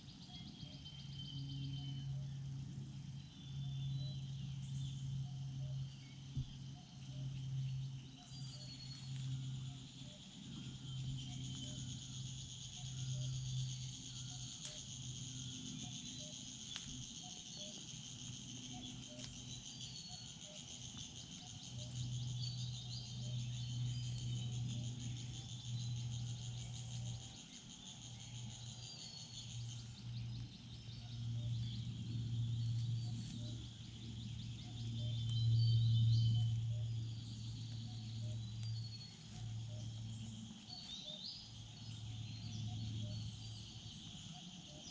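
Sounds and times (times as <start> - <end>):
insects buzzing: 0.0 - 44.9
bird chirps: 3.2 - 44.9.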